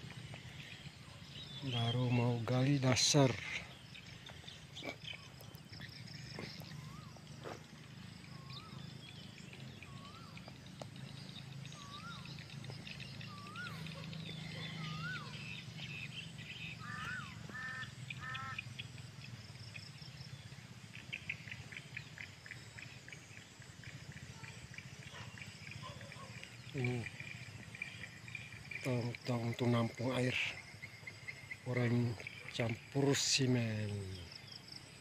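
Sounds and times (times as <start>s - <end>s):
bird whistling: 11.7s - 12.4s, 13.1s - 15.7s.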